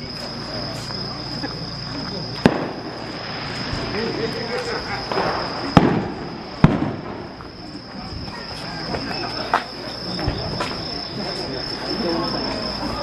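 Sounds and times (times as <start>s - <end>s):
insects trilling: 0.0s - 13.0s
firework bangs: 2.3s - 10.8s.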